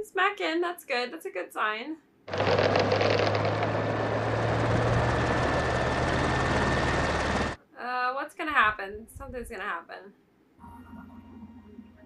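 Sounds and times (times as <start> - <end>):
helicopter engine and rotor: 2.3 - 7.6.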